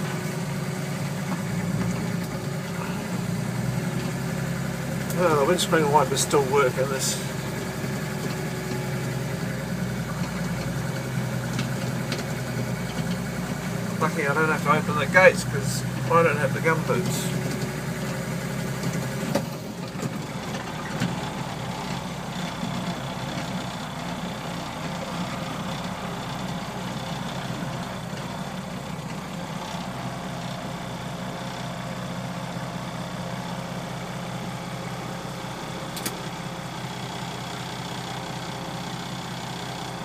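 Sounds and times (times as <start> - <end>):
tractor engine running: 0.0 - 40.0
sharp click: 36.0 - 36.2.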